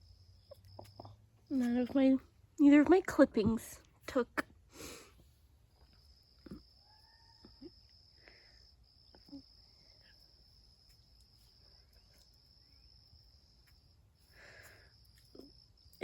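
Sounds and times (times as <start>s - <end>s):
high-pitched insect trill: 5.7s - 16.0s
soft bird chirps: 5.8s - 16.0s.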